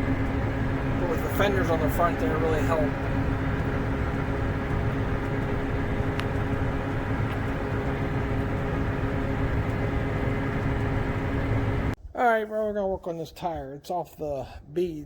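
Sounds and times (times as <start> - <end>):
constant engine whine: 0.0 - 12.0
tractor diesel engine drone: 0.0 - 12.0.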